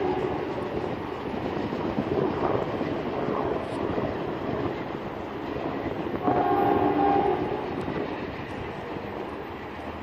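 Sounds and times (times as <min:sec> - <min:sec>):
train horn: 0:00.0 - 0:00.6, 0:06.2 - 0:07.8
freight train wheels rumbling: 0:00.0 - 0:10.0.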